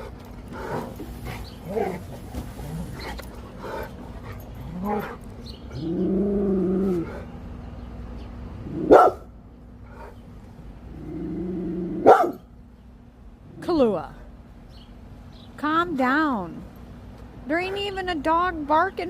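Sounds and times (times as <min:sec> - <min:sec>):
dog barking sharply: 0:08.9 - 0:09.3, 0:12.0 - 0:12.4
dog yipping: 0:12.0 - 0:12.4.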